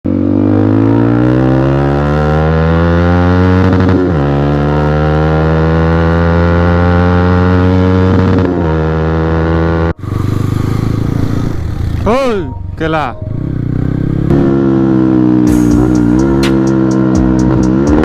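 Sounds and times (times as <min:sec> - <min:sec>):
motorcycle engine at high revs: 0:00.0 - 0:12.1, 0:13.3 - 0:18.0.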